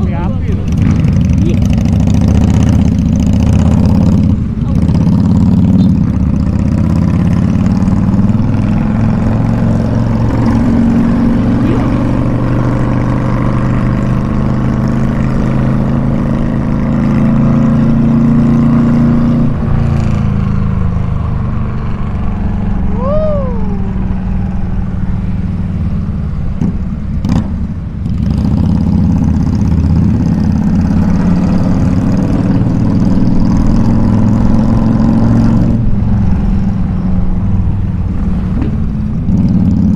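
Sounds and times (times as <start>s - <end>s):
motorcycle engine and exhaust: 0.0s - 39.9s
rising and falling chirp: 22.7s - 24.4s.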